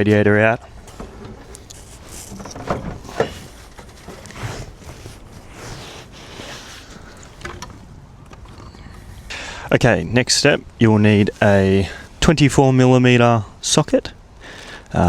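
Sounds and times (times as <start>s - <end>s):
parts scraping: 0.0s - 9.5s.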